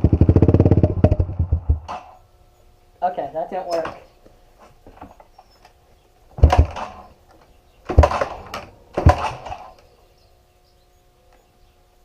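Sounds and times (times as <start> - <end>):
faint steady hum: 0.0 - 12.0
heavy thumps: 6.4 - 7.1, 7.9 - 9.7.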